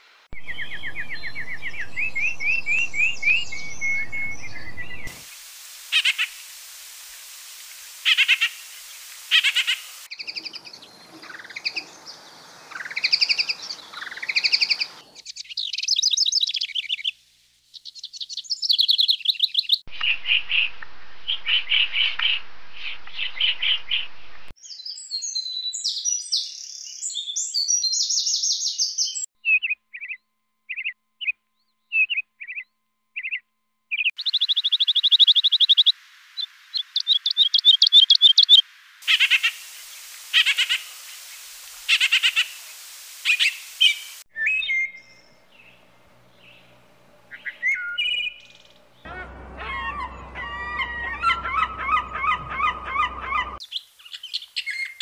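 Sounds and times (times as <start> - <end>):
small birds chirping and singing: 0.3 - 5.2, 8.1 - 20.7, 21.3 - 55.0.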